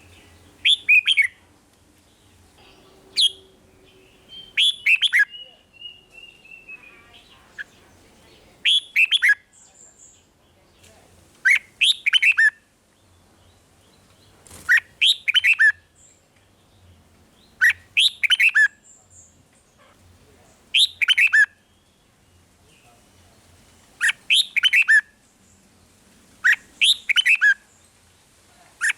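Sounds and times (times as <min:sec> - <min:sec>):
bird singing falling whistles: 0:04.3 - 0:06.9, 0:08.6 - 0:09.4, 0:14.7 - 0:15.8, 0:20.8 - 0:21.5, 0:24.0 - 0:25.0, 0:26.4 - 0:27.6.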